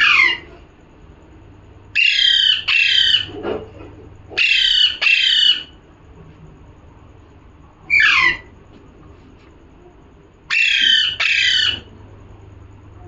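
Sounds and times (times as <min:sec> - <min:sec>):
parrot squawking: 0:00.0 - 0:00.6, 0:01.9 - 0:03.4, 0:04.3 - 0:05.8, 0:07.9 - 0:08.5, 0:10.5 - 0:11.9.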